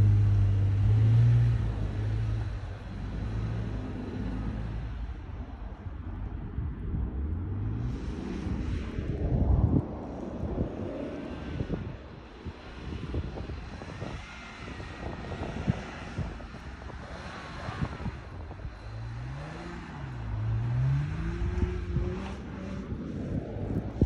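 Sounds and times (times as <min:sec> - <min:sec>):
car engine revving: 0:00.0 - 0:04.8, 0:15.0 - 0:23.8.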